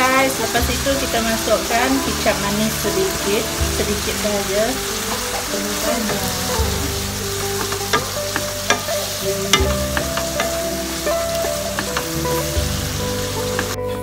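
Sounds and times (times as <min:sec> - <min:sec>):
food sizzling in pan: 0:00.0 - 0:14.0
spatula scraping pan: 0:04.8 - 0:13.8
spatula knocking against pan: 0:07.6 - 0:12.2.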